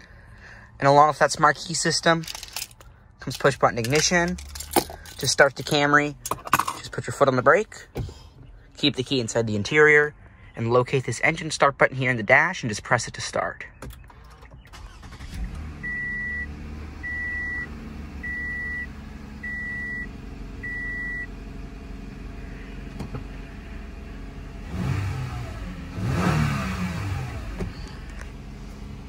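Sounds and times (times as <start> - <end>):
car engine starting and idling: 0.0 - 10.8, 13.7 - 29.0
engine revving: 14.7 - 29.0.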